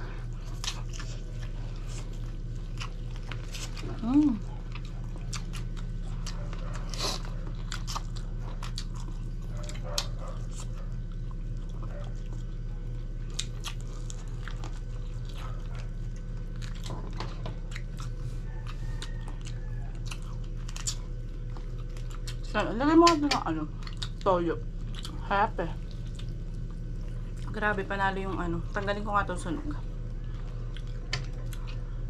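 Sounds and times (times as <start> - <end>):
chewing and biting chicken: 0.0 - 27.7, 29.8 - 32.0
steady low hum: 0.0 - 32.0
small crunches: 0.4 - 12.6.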